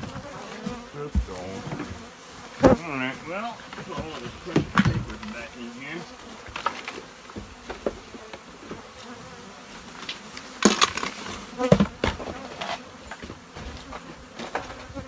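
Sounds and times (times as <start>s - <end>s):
bees buzzing: 0.0s - 15.0s
clattering and rustling: 3.6s - 5.5s, 6.2s - 9.2s, 9.8s - 15.0s.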